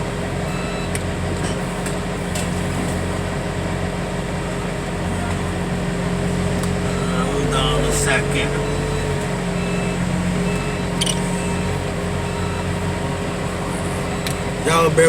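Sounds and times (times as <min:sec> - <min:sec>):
machine engine running: 0:01.7 - 0:15.0
steady whine: 0:04.5 - 0:15.0.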